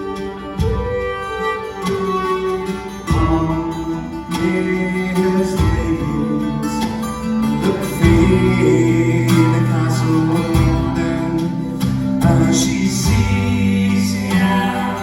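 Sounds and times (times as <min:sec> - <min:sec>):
folk band playing instrumental: 0:00.0 - 0:15.0
plucked guitar: 0:00.0 - 0:15.0.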